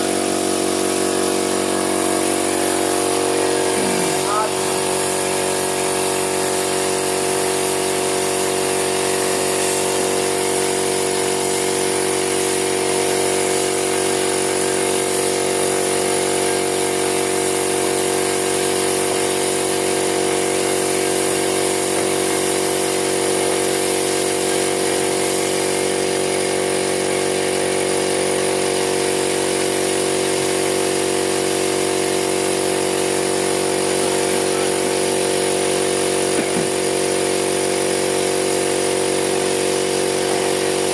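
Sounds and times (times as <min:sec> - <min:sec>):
power tool motor humming: 0:00.0 - 0:06.9, 0:32.3 - 0:37.9.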